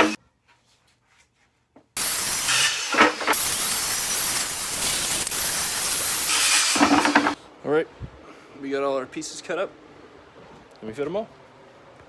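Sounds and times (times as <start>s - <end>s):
power saw cutting plywood: 2.0s - 7.4s.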